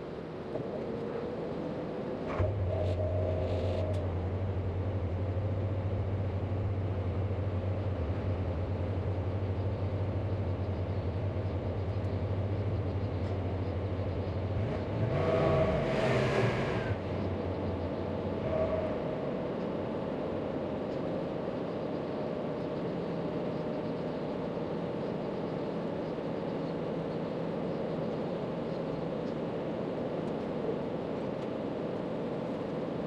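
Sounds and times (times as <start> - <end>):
low mechanical hum: 0.0 - 33.0.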